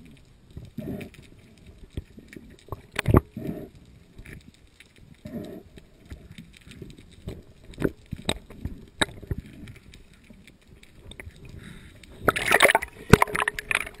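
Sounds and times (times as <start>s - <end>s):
water sloshing and splashing: 0.0s - 14.0s
underwater clicks and knocks: 1.7s - 3.4s, 6.1s - 11.6s, 12.2s - 14.0s.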